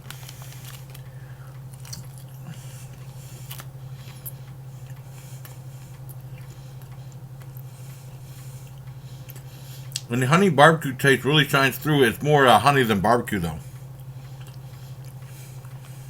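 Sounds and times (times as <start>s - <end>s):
person chewing: 0.0s - 10.1s, 13.8s - 16.0s
steady low hum: 0.0s - 16.0s.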